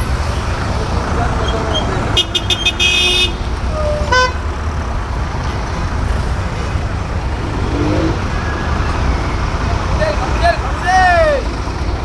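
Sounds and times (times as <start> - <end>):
low engine rumble: 0.0 - 12.0
vehicle horn toot: 1.7 - 4.4.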